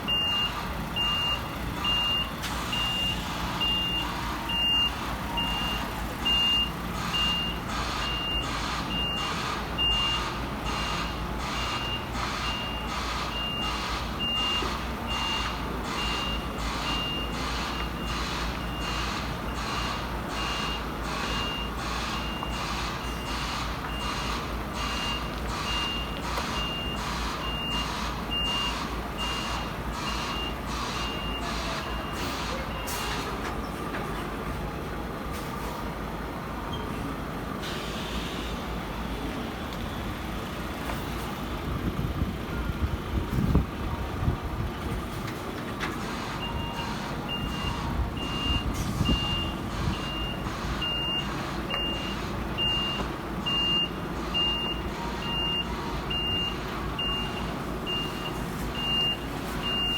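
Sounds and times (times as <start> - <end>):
truck engine running: 0.0 - 59.9
truck reversing alarm beeping: 0.0 - 59.9.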